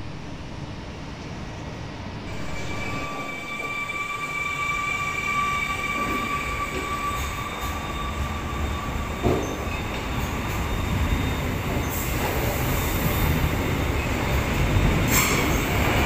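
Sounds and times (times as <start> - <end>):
train wheels rumbling on rail: 0.1 - 16.0
high-pitched squeal: 2.3 - 12.2.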